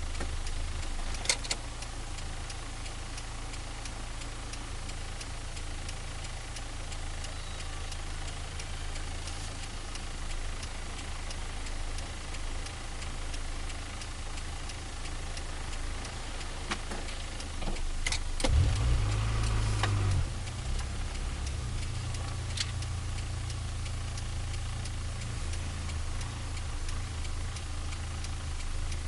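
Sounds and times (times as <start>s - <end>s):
car engine idling: 0.0s - 29.0s
faint regular ticking: 0.0s - 29.0s.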